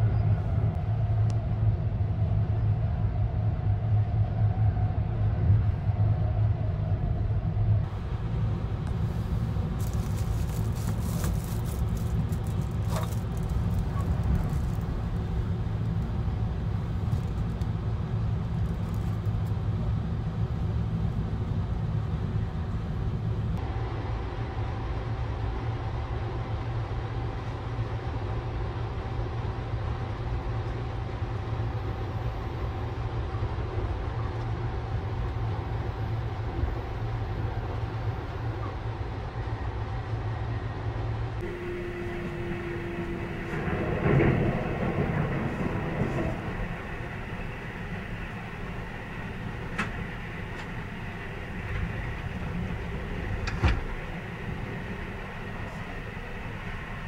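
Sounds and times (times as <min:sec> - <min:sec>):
faint steady whine: 0:00.0 - 0:57.0
train running low rumble: 0:00.0 - 0:57.0
crackly rustling: 0:08.8 - 0:19.8.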